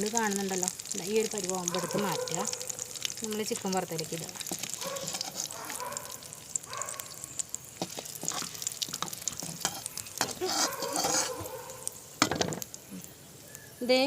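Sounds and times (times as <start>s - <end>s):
chillies sizzling in oil: 0.0s - 14.0s
spoon scraping pan: 4.4s - 5.8s, 7.8s - 11.9s.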